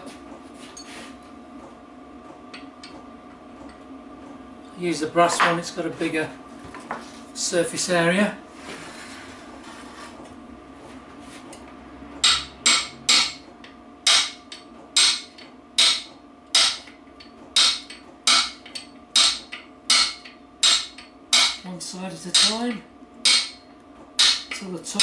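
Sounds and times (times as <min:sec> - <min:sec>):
hammer tapping on metal: 0:12.2 - 0:21.6, 0:22.3 - 0:23.6, 0:24.2 - 0:24.6.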